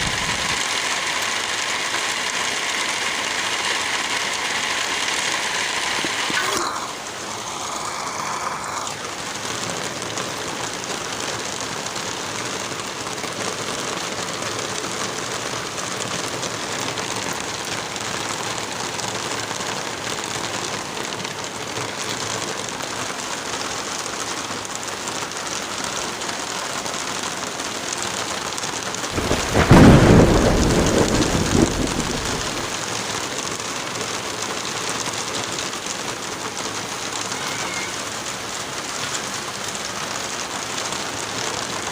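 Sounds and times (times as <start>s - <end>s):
steady rain falling: 0.0s - 41.9s
rumbling thunderclap: 29.1s - 32.8s.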